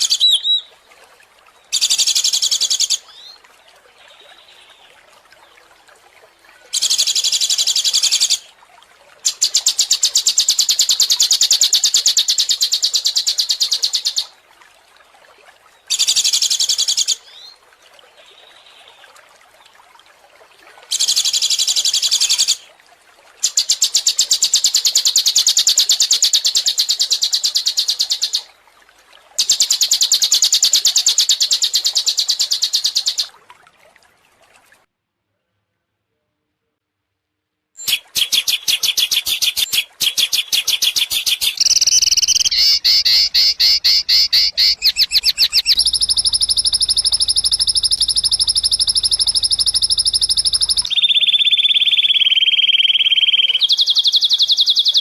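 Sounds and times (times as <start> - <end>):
songbird trilling: 0.0 - 0.7, 37.8 - 55.0.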